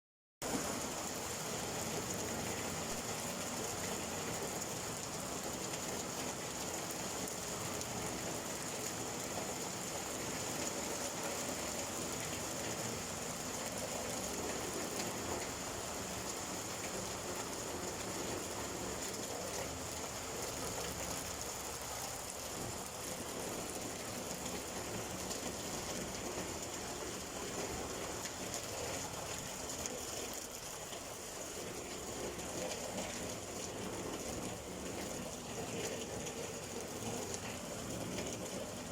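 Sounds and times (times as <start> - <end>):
steady rain falling: 0.4 - 38.9.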